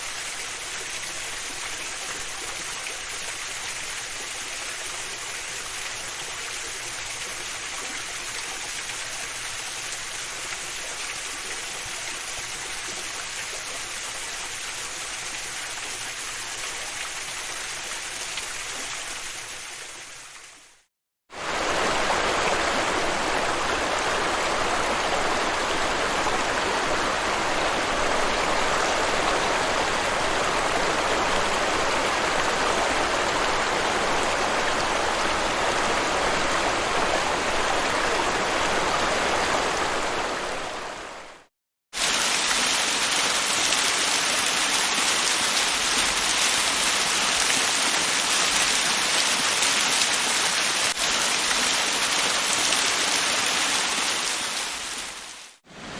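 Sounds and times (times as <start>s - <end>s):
hissy waterfall: 0.0s - 55.9s
waterfall rushing and splashing: 21.3s - 55.9s.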